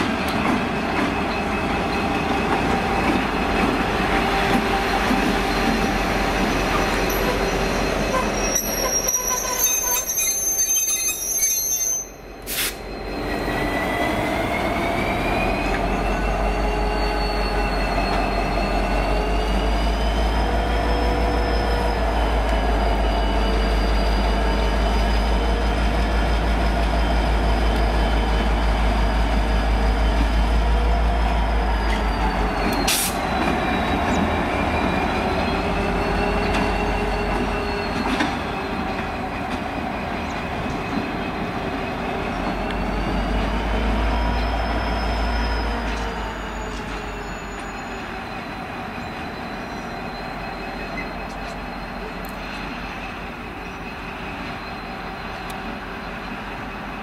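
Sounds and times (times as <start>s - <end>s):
wheels squealing: 0.1s - 57.0s
diesel locomotive rumble: 12.1s - 57.0s.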